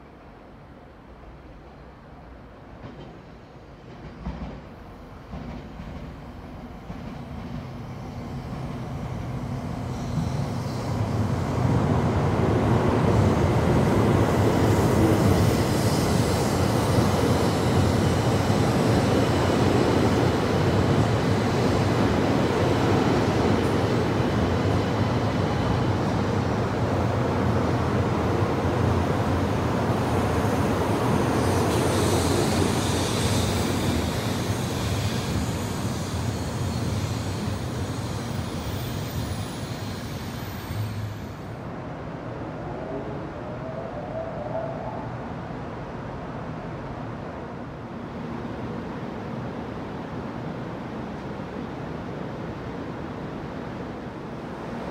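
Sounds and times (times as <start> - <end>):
high-speed train rushing rumble: 0.0 - 54.9.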